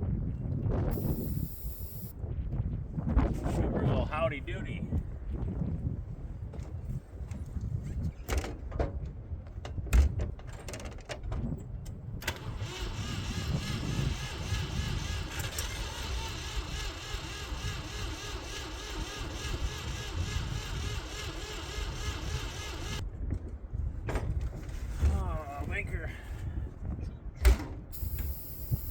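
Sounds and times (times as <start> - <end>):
engine starter cranking: 12.2 - 23.0.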